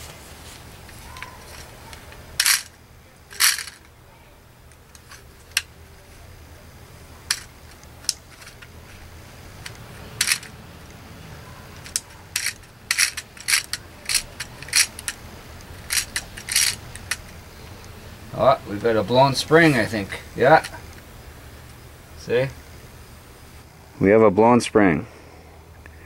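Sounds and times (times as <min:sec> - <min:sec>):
plastic parts clicking and tapping: 0:01.1 - 0:02.7, 0:07.3 - 0:08.8, 0:09.6 - 0:10.6, 0:11.8 - 0:17.4.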